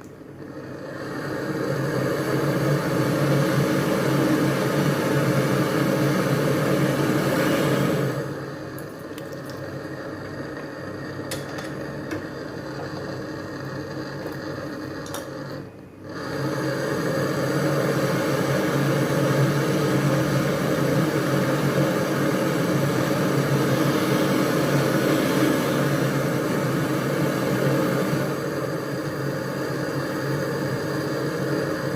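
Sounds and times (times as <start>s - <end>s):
machine whirring: 0.0s - 31.9s.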